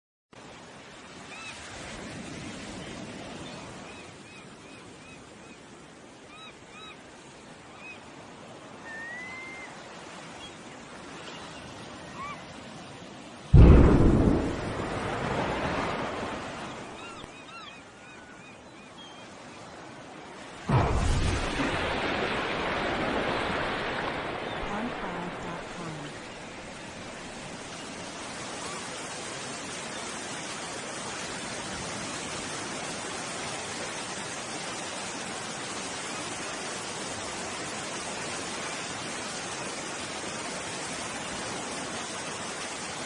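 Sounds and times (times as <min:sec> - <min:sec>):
explosion blast rumbling: 0:13.6 - 0:16.3, 0:20.7 - 0:23.6.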